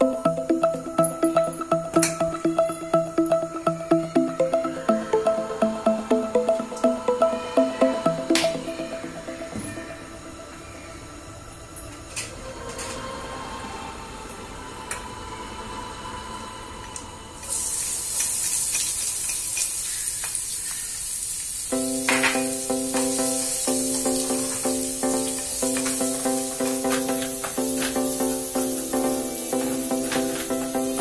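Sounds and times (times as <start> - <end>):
background music: 0.0 - 11.7, 21.7 - 31.0
garlic sizzling in hot oil: 17.5 - 30.5.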